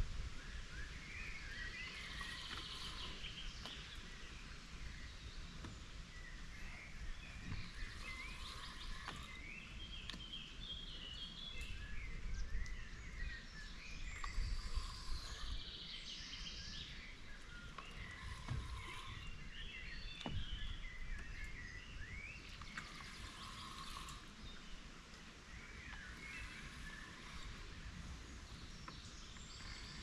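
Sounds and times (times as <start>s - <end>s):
faint clicks: 7.5s - 10.5s.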